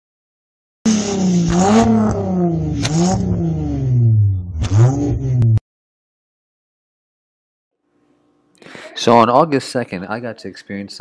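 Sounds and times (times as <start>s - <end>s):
car engine revving: 0.9s - 5.6s.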